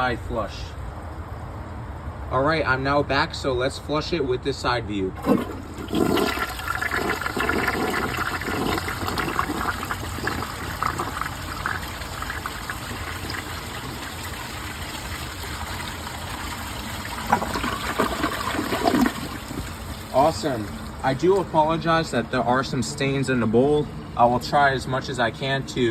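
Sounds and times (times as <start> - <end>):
toilet flushing: 5.2 - 21.5
running water: 5.2 - 23.0.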